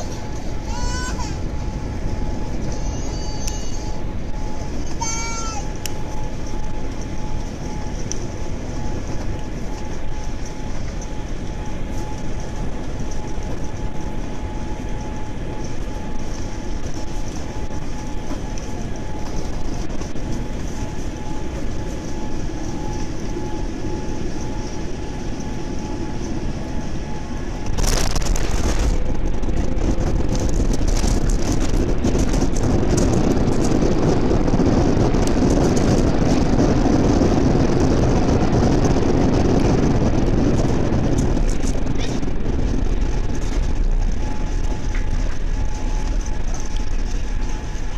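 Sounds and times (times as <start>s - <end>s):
airliner cabin engine rumble: 0.0s - 47.9s.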